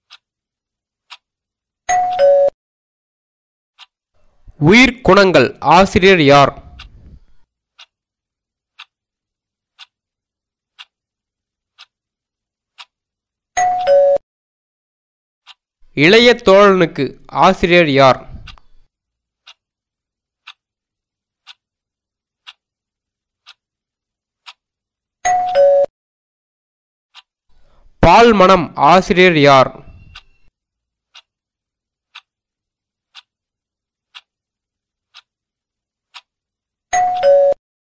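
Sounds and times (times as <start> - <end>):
timer ticking: 0.0 - 0.3, 1.0 - 2.3, 3.8 - 7.0, 7.7 - 9.1, 9.7 - 11.1, 11.7 - 12.1, 12.7 - 13.0, 15.4 - 18.7, 19.4 - 19.7, 20.4 - 20.7, 21.4 - 21.8, 22.4 - 22.8, 23.4 - 23.7, 24.4 - 24.7, 27.1 - 27.4, 31.1 - 31.4, 32.0 - 32.4, 33.1 - 34.4, 35.0 - 35.4, 36.1 - 36.4.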